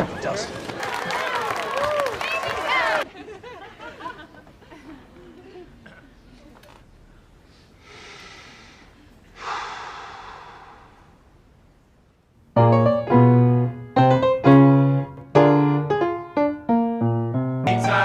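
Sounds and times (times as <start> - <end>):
soft breathy swells: 7.0 - 11.9
piano chords: 12.6 - 18.0.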